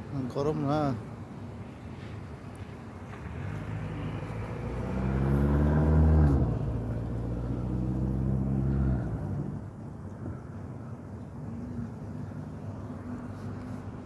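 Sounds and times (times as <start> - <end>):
vehicle engine pulling away: 3.2 - 9.6.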